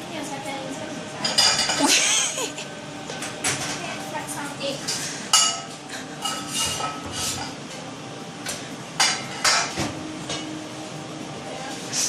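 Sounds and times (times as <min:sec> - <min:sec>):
pots and pans clattering: 0:01.2 - 0:04.0, 0:04.8 - 0:07.6, 0:08.5 - 0:10.6.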